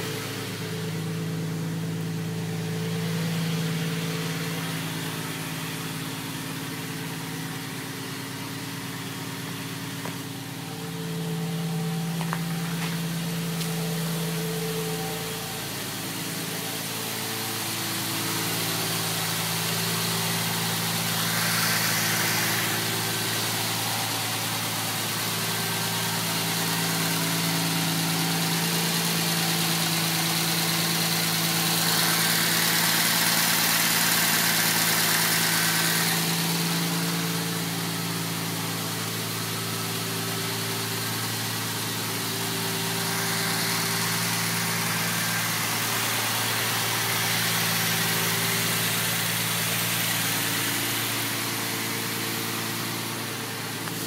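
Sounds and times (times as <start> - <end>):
car engine idling: 0.0 - 54.0
hiss: 18.1 - 25.6.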